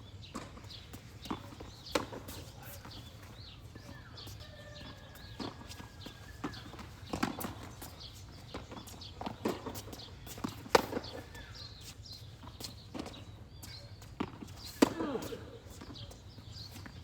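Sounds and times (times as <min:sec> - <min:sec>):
footsteps on court: 0:00.2 - 0:17.0
tennis balls struck with rackets: 0:00.3 - 0:03.4, 0:04.2 - 0:13.3, 0:14.2 - 0:17.0
balls bouncing on hard court: 0:00.3 - 0:13.3.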